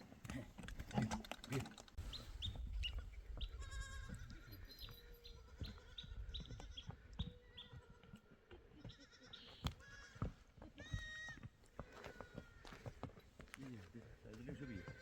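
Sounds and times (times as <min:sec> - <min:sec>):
goats bleating: 0:03.4 - 0:12.9, 0:14.3 - 0:15.0.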